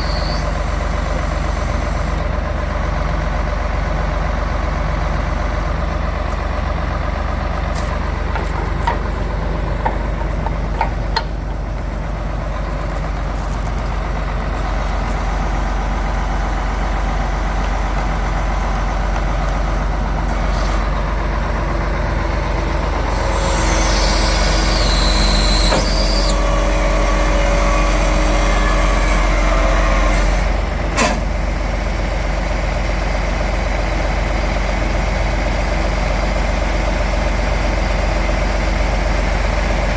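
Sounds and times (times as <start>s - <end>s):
diesel truck engine idling: 0.0s - 39.9s
loud hissing: 23.0s - 26.7s.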